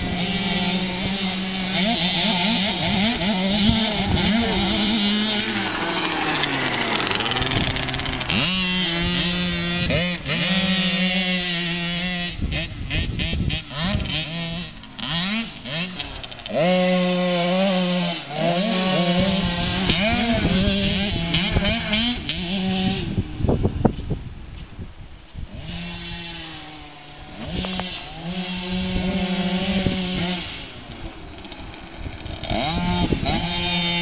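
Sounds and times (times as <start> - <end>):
small two-stroke engines revving: 0.0 - 23.9, 25.4 - 34.0.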